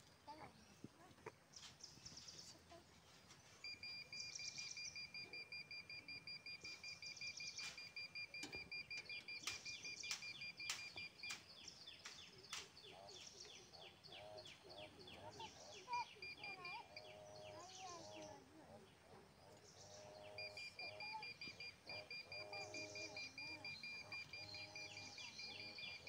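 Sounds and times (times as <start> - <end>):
birds chirping and trilling: 1.5 - 26.0
sharp clicks: 5.4 - 12.8.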